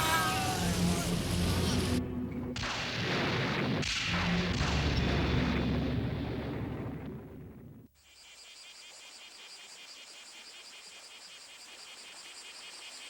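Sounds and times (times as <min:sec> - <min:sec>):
deep rumbling booms: 0:00.0 - 0:07.8.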